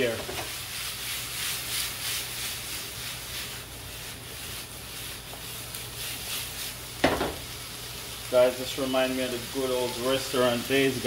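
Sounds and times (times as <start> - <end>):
food tossed in a shaken pan: 0.0 - 8.4
food sizzling in a frying pan: 0.0 - 11.0.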